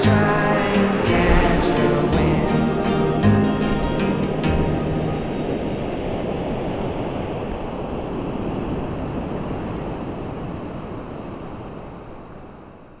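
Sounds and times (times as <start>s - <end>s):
steady rushing noise: 0.0s - 10.2s.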